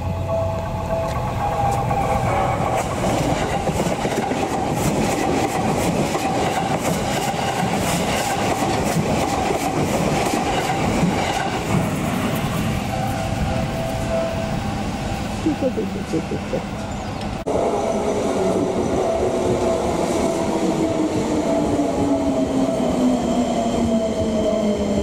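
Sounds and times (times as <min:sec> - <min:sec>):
level-crossing warning bell ringing: 0:00.0 - 0:04.6, 0:12.4 - 0:17.2, 0:17.9 - 0:23.2
train wheels clattering over rail joints: 0:01.1 - 0:12.5.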